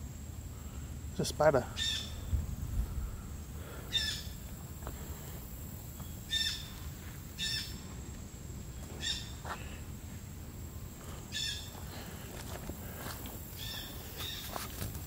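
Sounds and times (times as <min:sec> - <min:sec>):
bird harsh call: 0:01.7 - 0:02.3, 0:03.6 - 0:04.4, 0:06.3 - 0:06.8, 0:07.4 - 0:07.8, 0:09.0 - 0:09.8, 0:11.3 - 0:11.8, 0:13.6 - 0:14.5
footsteps on dirt trail: 0:04.4 - 0:15.0.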